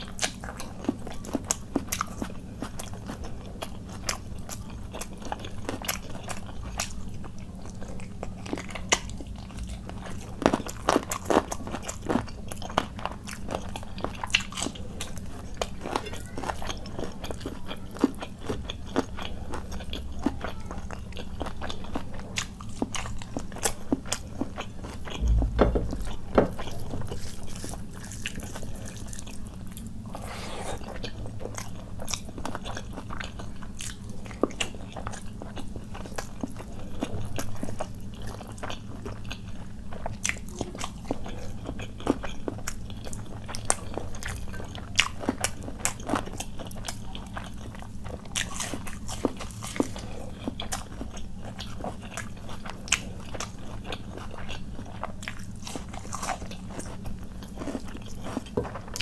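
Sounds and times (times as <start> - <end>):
low thump: 25.2 - 27.2
wet chewing with smacks: 26.2 - 59.0.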